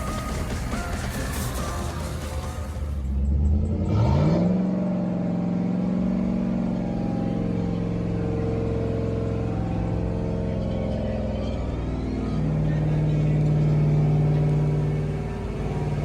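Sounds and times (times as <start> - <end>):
subwoofers playing low bass tone: 3.0 - 16.0.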